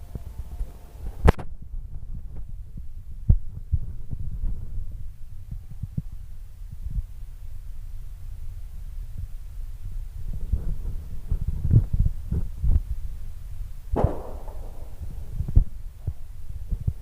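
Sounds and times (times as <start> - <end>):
low rumble: 13.8 - 17.0
muffled firework thumps: 13.9 - 17.0
sharp firework bang: 14.0 - 15.7.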